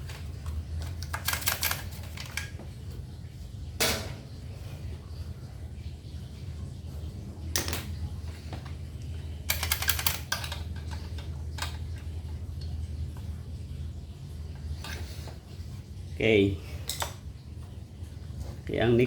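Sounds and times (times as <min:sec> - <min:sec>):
metal parts clicking and rattling: 0:00.0 - 0:02.6, 0:09.4 - 0:12.1.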